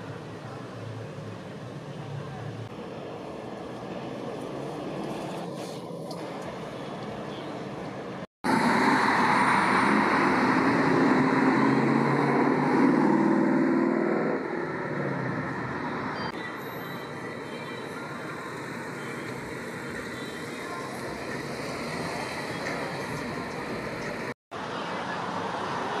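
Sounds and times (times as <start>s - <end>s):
street traffic noise: 0.0s - 26.0s
loud car engine and exhaust: 8.4s - 16.4s.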